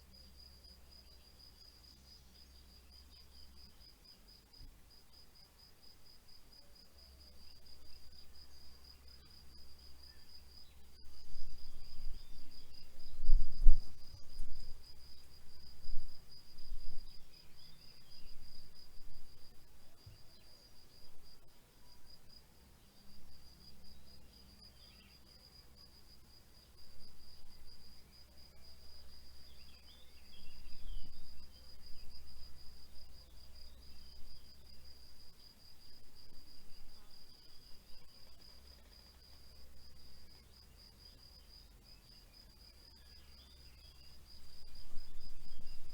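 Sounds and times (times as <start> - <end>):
cricket chirping: 0.0 - 45.9.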